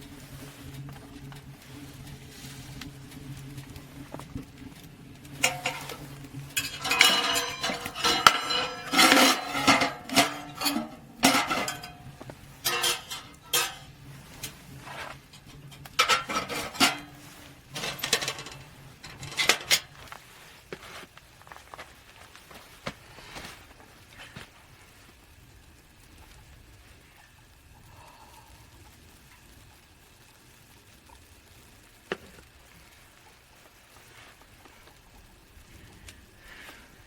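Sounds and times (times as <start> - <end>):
cookware and utensils clattering: 5.2 - 21.0.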